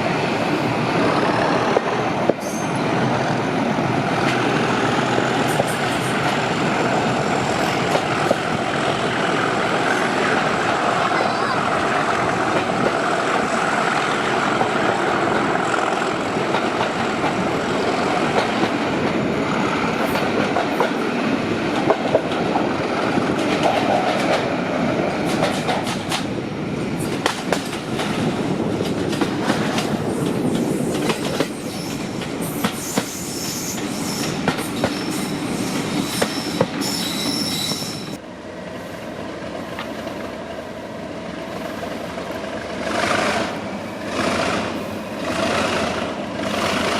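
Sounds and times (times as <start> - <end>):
train running on rails: 0.0 - 46.9
train wheels squealing: 1.9 - 3.4, 30.5 - 38.2
wheels clicking over rail joints: 7.6 - 9.1, 20.0 - 26.4.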